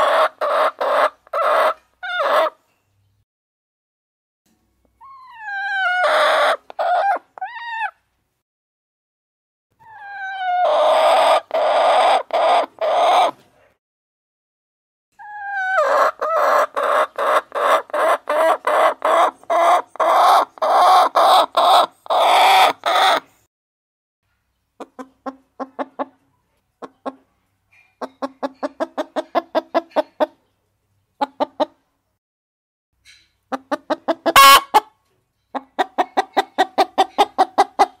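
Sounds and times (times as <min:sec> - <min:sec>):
chickens calling and clucking: 0:00.0 - 0:02.7, 0:05.0 - 0:08.0, 0:09.9 - 0:13.5, 0:15.2 - 0:23.3, 0:24.5 - 0:31.9, 0:33.5 - 0:38.0.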